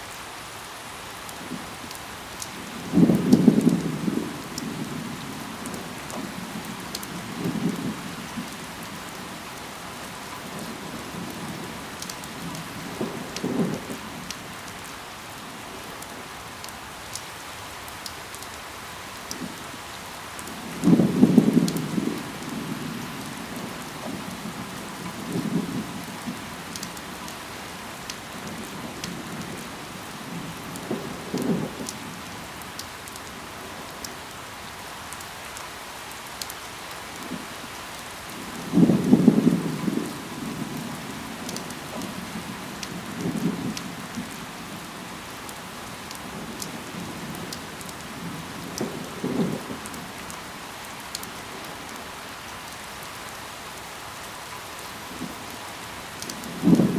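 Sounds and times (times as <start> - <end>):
rain falling on leaves: 0.0 - 56.9
distant thunder rumbling: 20.5 - 27.2, 38.3 - 45.2, 46.1 - 50.3, 56.2 - 56.9.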